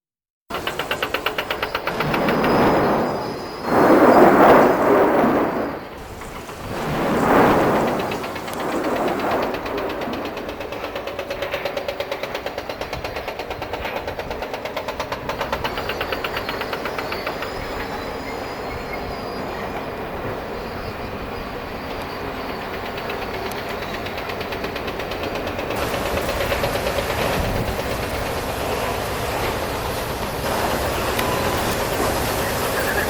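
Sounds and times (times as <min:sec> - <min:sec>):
large engine pulsing: 0:21.2 - 0:33.0.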